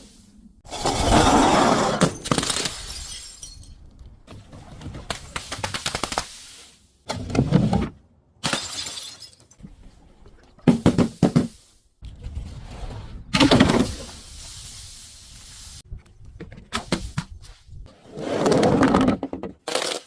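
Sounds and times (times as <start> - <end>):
glass crushing and shattering: 2.1 - 3.9, 8.4 - 9.6.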